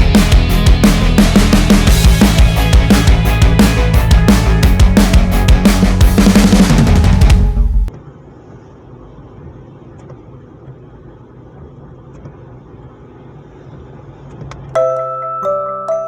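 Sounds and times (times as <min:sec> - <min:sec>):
loud music: 0:00.0 - 0:07.9
tune with chime-like notes: 0:14.8 - 0:16.0.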